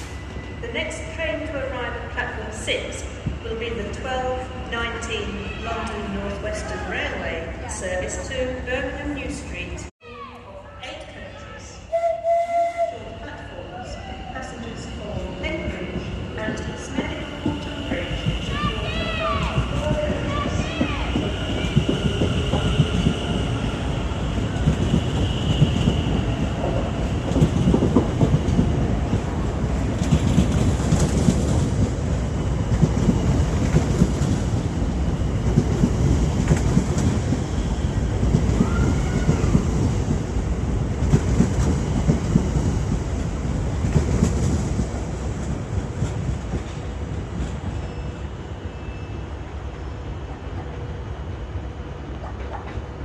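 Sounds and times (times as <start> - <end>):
wheels rumbling on rail: 14.4 - 53.0.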